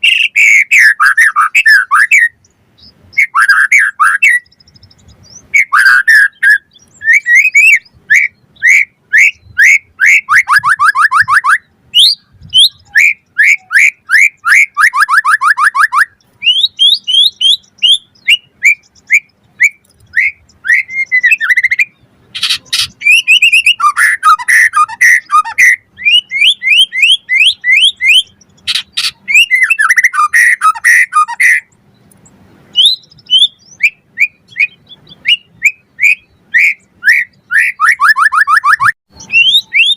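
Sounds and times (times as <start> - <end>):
harsh rattling bird calls: 0.0 - 39.9
songbird whistled song: 0.0 - 39.9.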